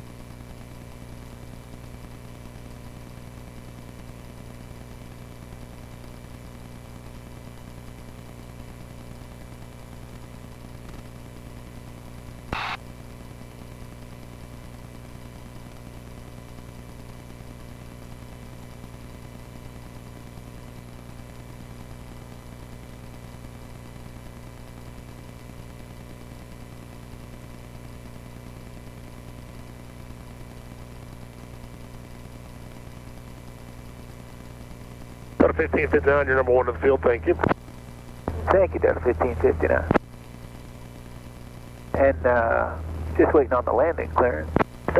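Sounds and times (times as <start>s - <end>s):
radio static burst: 12.5s - 12.9s, 35.0s - 44.9s.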